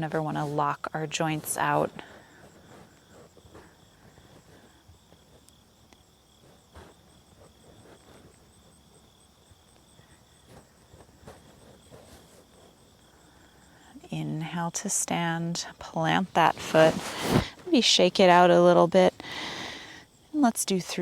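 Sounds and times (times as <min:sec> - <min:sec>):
soft rustles: 0:00.0 - 0:13.4, 0:16.1 - 0:18.5.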